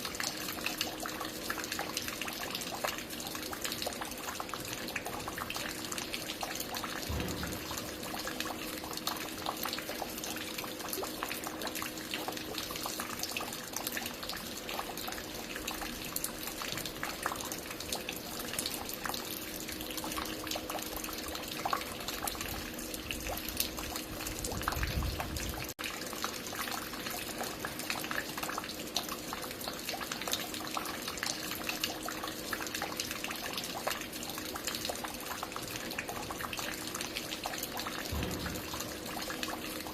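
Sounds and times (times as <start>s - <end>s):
water dripping and trickling: 0.0s - 39.9s.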